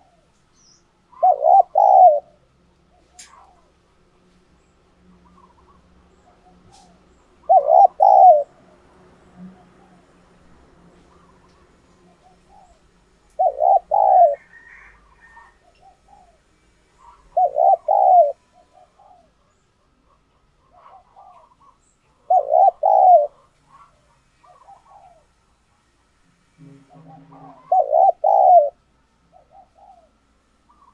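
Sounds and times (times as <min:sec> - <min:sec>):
faint bird calls: 0:00.0 - 0:03.9, 0:05.0 - 0:10.2, 0:10.9 - 0:25.4, 0:26.6 - 0:30.9
dove cooing: 0:01.1 - 0:03.7, 0:05.2 - 0:08.6, 0:11.1 - 0:25.3, 0:26.6 - 0:30.9.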